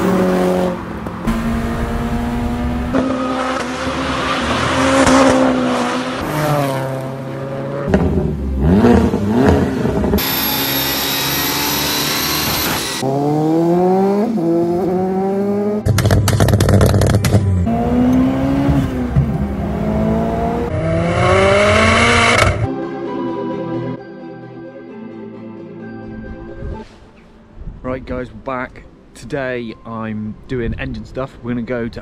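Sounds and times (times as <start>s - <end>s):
car engines revving: 0.0s - 22.7s.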